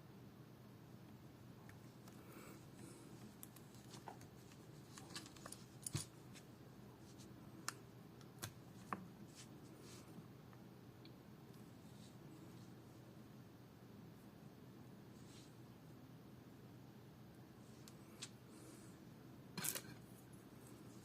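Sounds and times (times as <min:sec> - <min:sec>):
small tools and parts clicking: 0:19.6 - 0:20.0.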